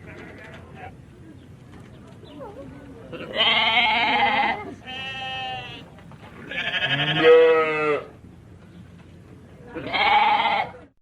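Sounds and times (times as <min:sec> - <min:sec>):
sheep bleating: 0:03.2 - 0:05.8, 0:06.4 - 0:08.1, 0:09.8 - 0:10.8.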